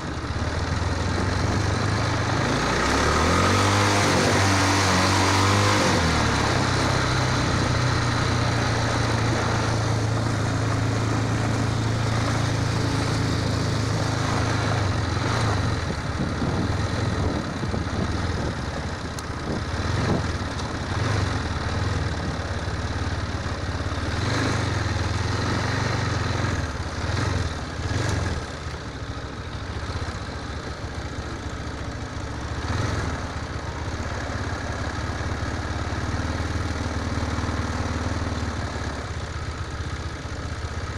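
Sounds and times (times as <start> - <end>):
motorcycle engine running: 0.0 - 40.9
dense rushing noise: 1.0 - 22.5.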